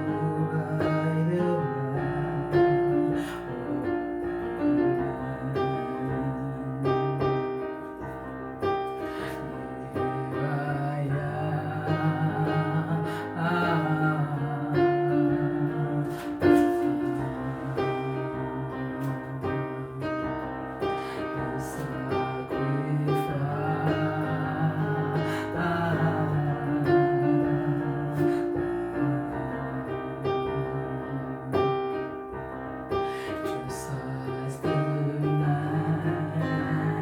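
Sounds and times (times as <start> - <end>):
person singing: 0.0 - 8.0, 8.6 - 32.2, 32.9 - 37.0
slow keyboard worship music: 0.0 - 37.0.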